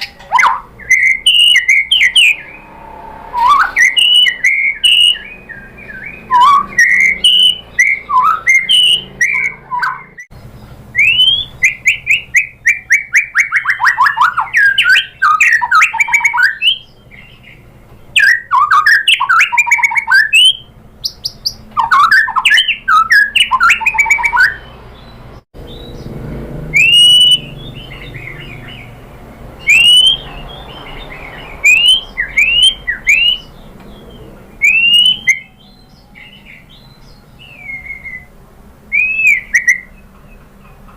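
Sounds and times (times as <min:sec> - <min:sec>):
bird singing whistles and trills: 0:00.0 - 0:26.1, 0:26.7 - 0:29.0, 0:29.6 - 0:40.4.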